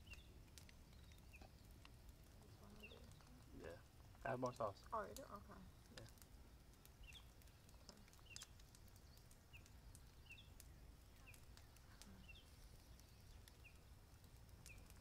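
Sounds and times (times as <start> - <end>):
faint clicks: 0.0 - 3.5, 4.1 - 15.0
bird chirping: 0.0 - 3.7, 6.9 - 15.0.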